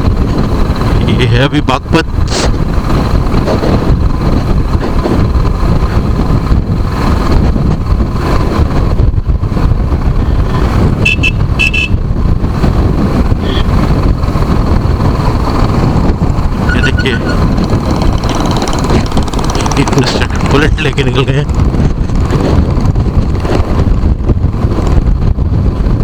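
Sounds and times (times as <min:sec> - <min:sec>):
vehicle engine and road noise: 0:00.0 - 0:26.0
wind buffeting: 0:00.0 - 0:26.0
short horn beeps: 0:11.0 - 0:12.0, 0:13.4 - 0:13.7, 0:16.6 - 0:17.4.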